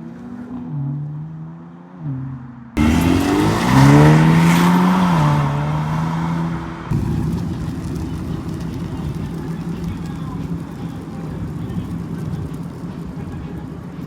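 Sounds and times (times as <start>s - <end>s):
car engines accelerating: 0.0s - 14.0s
car engine running steadily: 2.8s - 14.0s.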